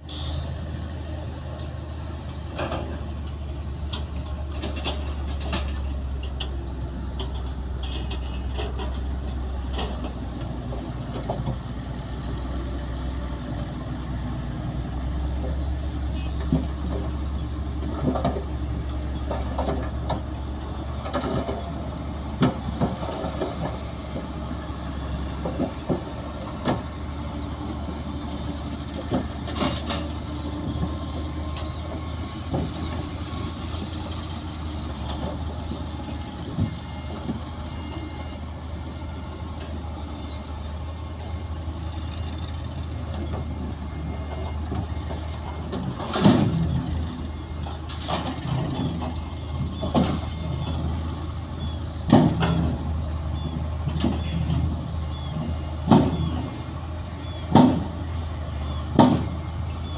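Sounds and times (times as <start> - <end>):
diesel machinery engine drone: 0.0 - 59.9
metallic clanks and knocks: 2.5 - 11.6, 16.4 - 21.8, 28.9 - 33.1, 43.1 - 50.8, 52.1 - 53.0, 57.5 - 58.0, 58.6 - 59.4.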